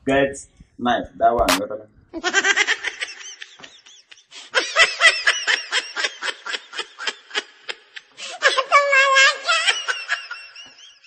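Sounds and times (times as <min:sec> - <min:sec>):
high-pitched giggling: 0:02.2 - 0:10.7.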